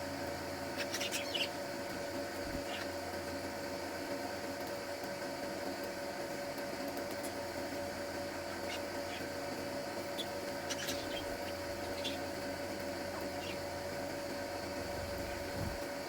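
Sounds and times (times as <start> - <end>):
background hum: 0.0 - 16.0
small birds chirping: 0.7 - 3.1, 7.0 - 15.8.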